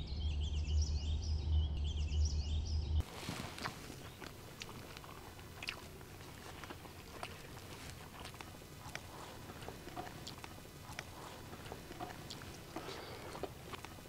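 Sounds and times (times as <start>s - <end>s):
person chewing and lip smacking: 3.4s - 14.0s
wet mouth clicks: 3.5s - 14.0s.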